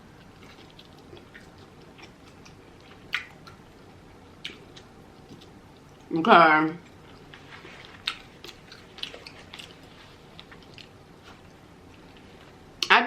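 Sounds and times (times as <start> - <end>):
chewing with wet mouth clicks: 0.2 - 6.1, 6.8 - 12.9
sharp mouth smacks: 3.1 - 3.6.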